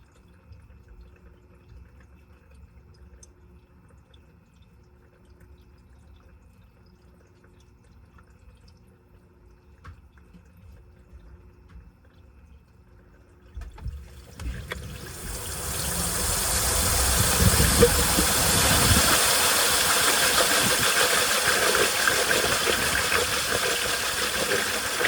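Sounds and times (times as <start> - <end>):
water dripping and trickling: 0.0 - 25.0
rushing noise: 14.6 - 25.0.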